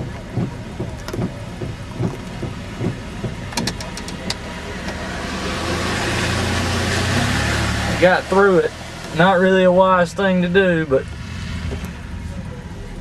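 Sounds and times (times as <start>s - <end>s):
short thumps: 0.0s - 5.0s
truck driving through water: 0.0s - 13.0s
truck engine running: 0.0s - 13.0s.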